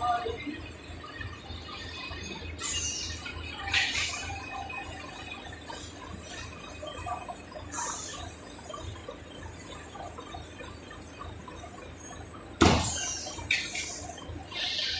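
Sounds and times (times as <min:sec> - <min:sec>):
machinery running with low pulsing: 0:00.0 - 0:14.9
loud machine clunk: 0:12.6 - 0:13.1.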